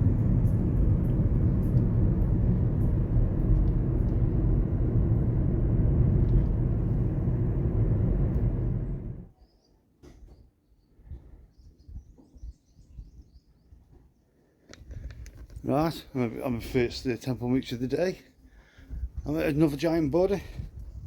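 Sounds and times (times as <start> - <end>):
wind and road noise: 0.0 - 9.3, 18.7 - 21.0.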